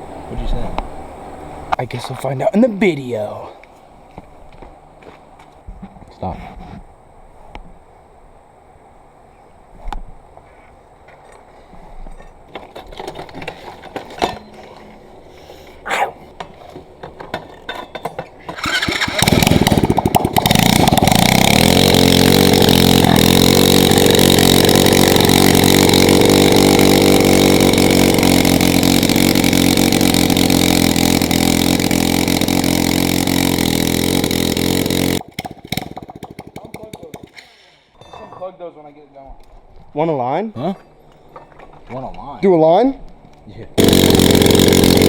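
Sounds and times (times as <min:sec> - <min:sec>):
motorcycle engine revving: 0:18.5 - 0:36.9, 0:43.8 - 0:45.0
tire spinning: 0:18.5 - 0:36.9, 0:43.8 - 0:45.0.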